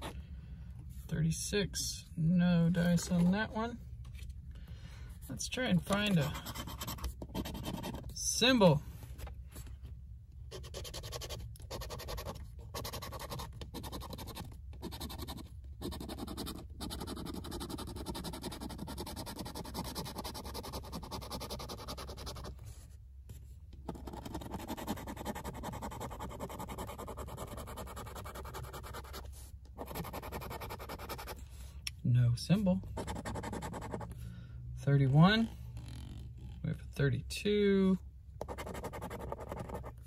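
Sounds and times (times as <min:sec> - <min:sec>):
scratching lottery ticket coating: 0:10.6 - 0:14.4, 0:15.0 - 0:22.5.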